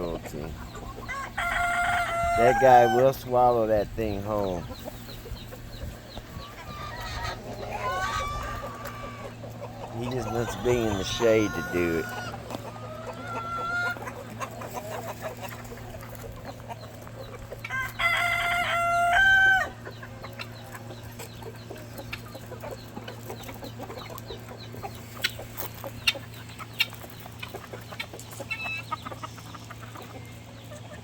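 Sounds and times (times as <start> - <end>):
chickens clucking softly: 0.0 - 31.0
rooster crowing: 1.1 - 3.1, 10.0 - 12.4, 17.7 - 19.8.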